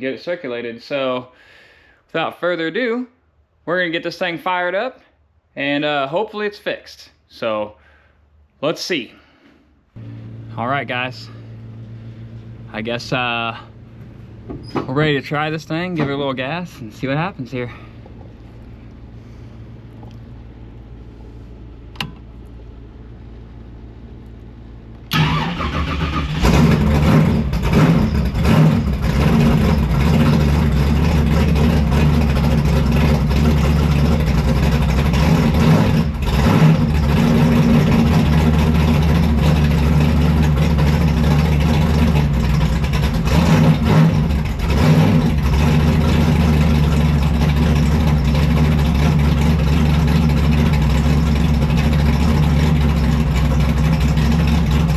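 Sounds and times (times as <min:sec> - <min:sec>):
car engine idling and revving: 0:10.0 - 0:54.9
ignition click: 0:21.9 - 0:22.3.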